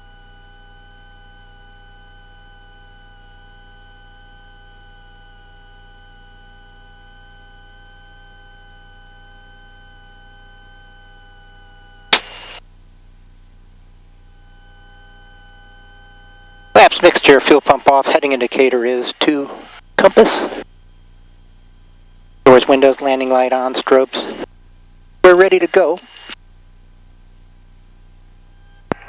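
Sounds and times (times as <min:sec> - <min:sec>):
steady hum of fixed tones: 0:00.2 - 0:29.0
static: 0:12.0 - 0:12.6, 0:14.4 - 0:21.0, 0:22.5 - 0:24.5, 0:25.2 - 0:26.4, 0:28.5 - 0:29.0
sharp loud click: 0:12.1 - 0:12.5.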